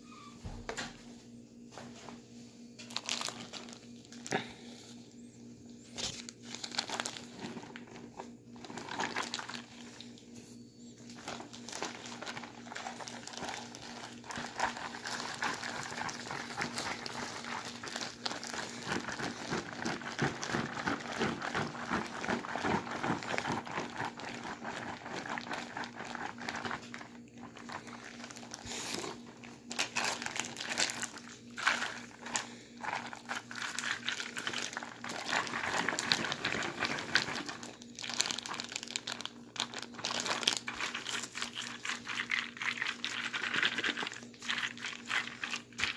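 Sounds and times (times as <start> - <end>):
plastic bag crinkling: 2.8 - 5.0, 5.8 - 45.9.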